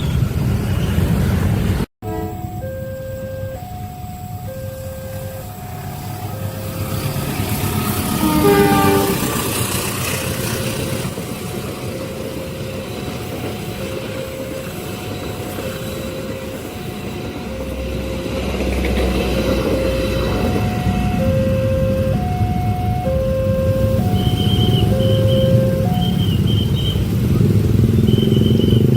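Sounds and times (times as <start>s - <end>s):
train running past: 0.0s - 28.9s
level-crossing alarm: 2.0s - 28.9s
train horn blowing: 7.8s - 9.6s.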